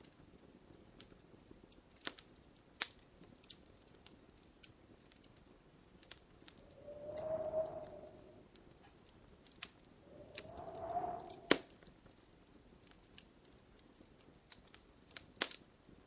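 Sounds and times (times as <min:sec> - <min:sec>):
wood fire crackling and popping: 0:00.0 - 0:08.3, 0:12.8 - 0:16.0.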